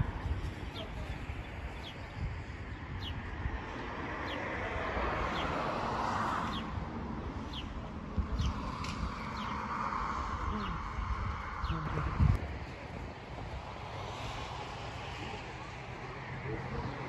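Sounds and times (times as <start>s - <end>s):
small birds chirping: 0.4s - 3.4s, 6.3s - 9.8s, 10.4s - 12.3s.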